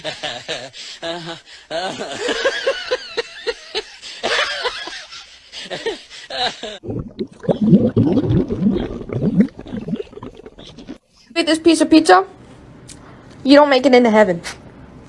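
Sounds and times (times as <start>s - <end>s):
person laughing: 0.0s - 6.8s.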